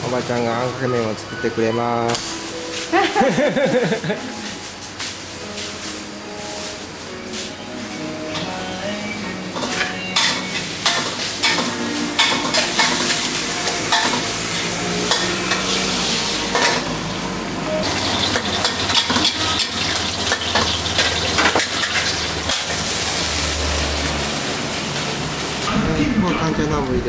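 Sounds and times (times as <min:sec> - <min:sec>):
food sizzling in a wok: 0:02.2 - 0:25.7
metal spatula clanking on pan: 0:09.6 - 0:13.2, 0:13.9 - 0:14.3, 0:15.1 - 0:15.8, 0:18.2 - 0:22.8.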